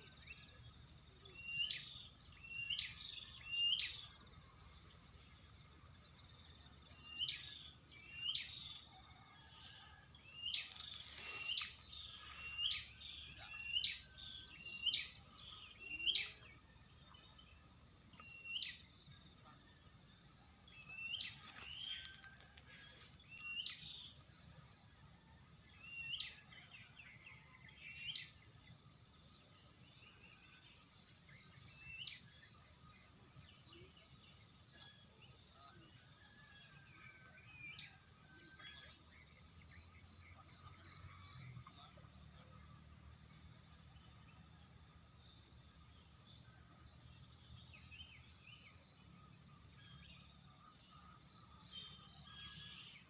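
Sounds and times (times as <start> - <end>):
birds calling with whistled notes: 0.0 - 53.0
quick insect chirps: 10.3 - 12.6.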